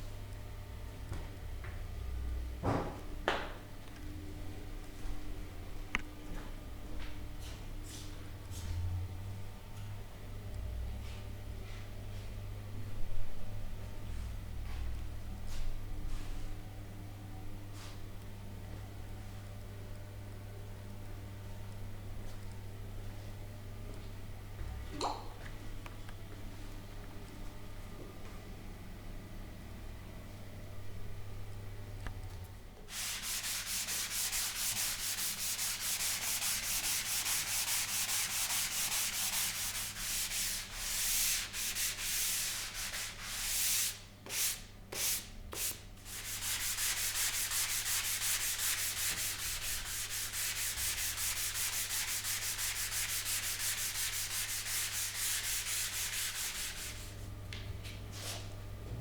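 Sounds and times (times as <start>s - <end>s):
hand sanding wood: 32.9s - 57.2s.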